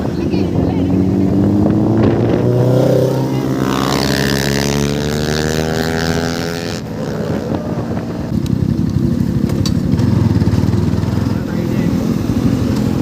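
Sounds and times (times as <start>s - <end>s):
wind on microphone: 0.0s - 10.0s
motorcycle engine running: 0.0s - 13.0s.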